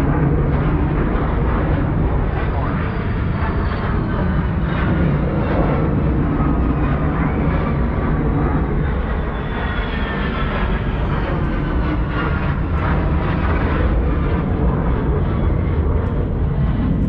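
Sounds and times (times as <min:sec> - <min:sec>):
airplane flying past: 0:00.0 - 0:17.0.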